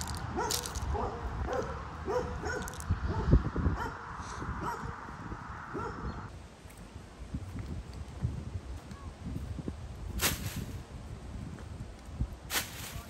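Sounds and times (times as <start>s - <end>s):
low rumble: 0.0s - 6.3s.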